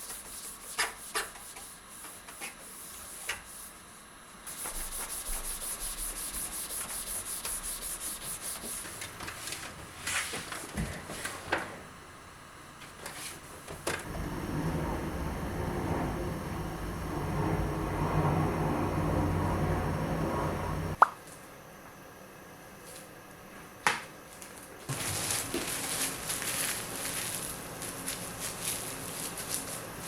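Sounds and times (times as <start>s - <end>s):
rapid scrubbing strokes on surface: 0.0s - 3.8s, 4.5s - 9.0s
low steady rumble: 14.0s - 21.0s.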